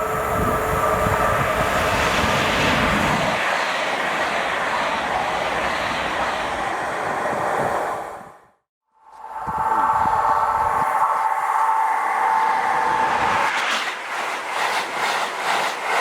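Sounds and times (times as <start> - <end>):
train wheels on rails: 0.0 - 8.4, 9.2 - 16.0
faint train whine: 0.0 - 16.0
low train rumble: 0.0 - 16.0.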